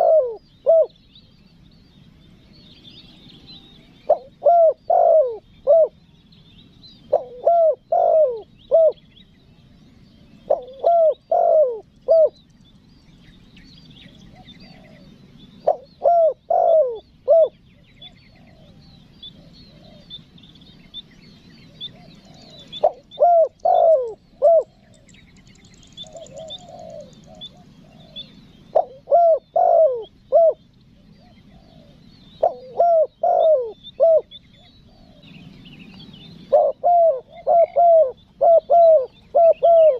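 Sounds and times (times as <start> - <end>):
dove cooing: 0.0 - 1.0, 3.5 - 6.0, 7.0 - 9.0, 10.4 - 12.4, 14.2 - 20.2, 21.6 - 35.6, 36.4 - 39.9
small birds chirping: 0.0 - 39.9.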